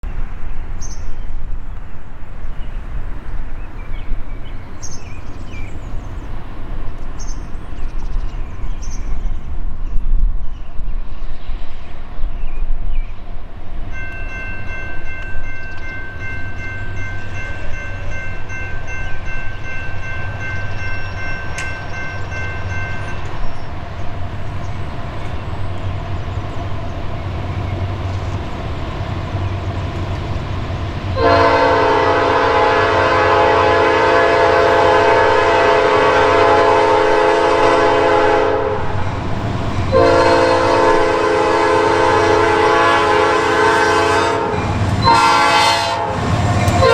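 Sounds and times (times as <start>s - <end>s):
locomotive rumble: 0.0s - 46.9s
locomotive air horn blasts: 31.2s - 39.0s, 39.9s - 46.9s.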